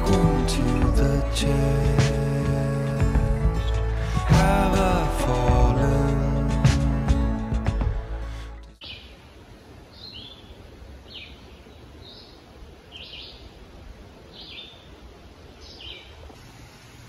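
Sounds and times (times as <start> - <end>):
songbird singing: 0.0 - 7.4, 8.7 - 16.8
low forest rumble: 0.0 - 8.6.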